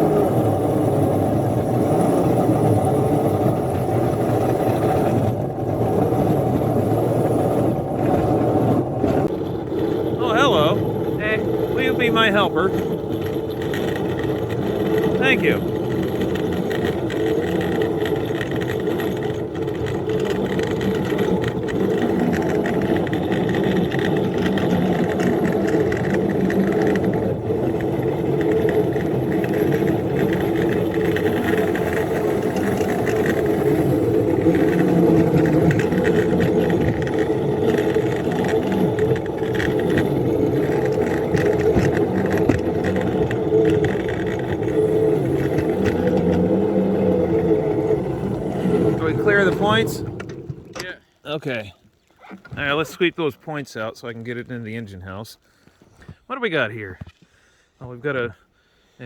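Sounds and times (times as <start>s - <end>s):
small locomotive engine running: 0.0s - 50.8s.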